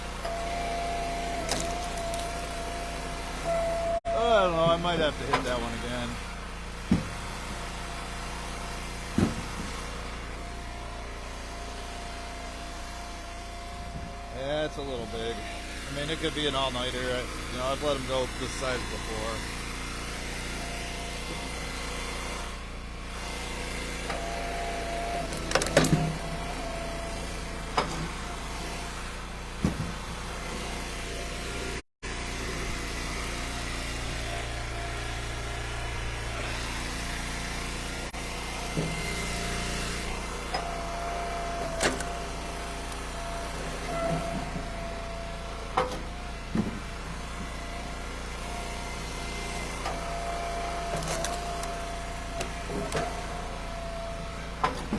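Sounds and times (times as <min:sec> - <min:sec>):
wood splitter running: 0:00.0 - 0:54.9
wood splitting cracks: 0:01.5 - 0:02.6.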